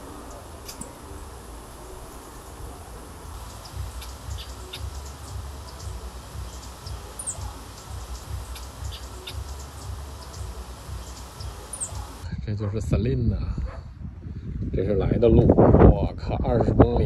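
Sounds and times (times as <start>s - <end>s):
small birds chip notes: 0.0s - 12.3s
steady low rumble: 0.0s - 17.0s.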